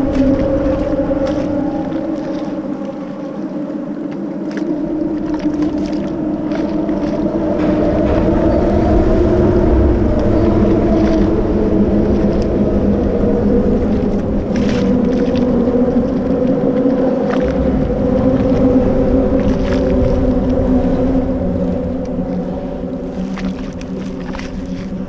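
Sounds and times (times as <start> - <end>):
boat motor running: 7.1 - 25.0.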